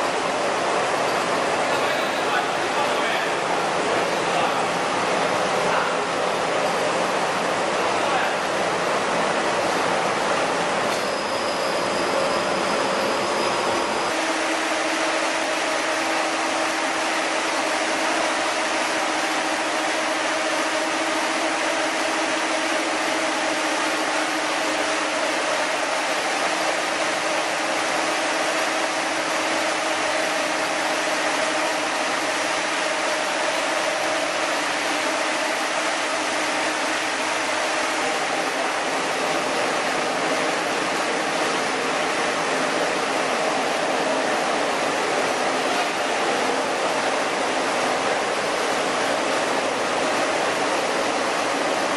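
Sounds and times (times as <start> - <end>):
machinery rushing noise: 11.3 - 51.9.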